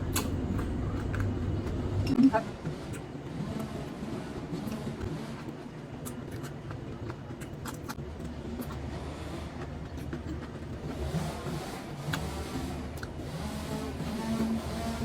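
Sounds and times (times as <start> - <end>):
small eating clicks: 4.5 - 11.0.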